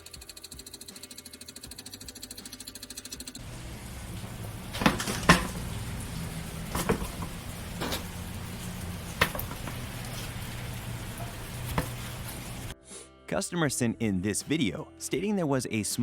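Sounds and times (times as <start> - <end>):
sharp knocks or clicks: 3.4 - 12.7.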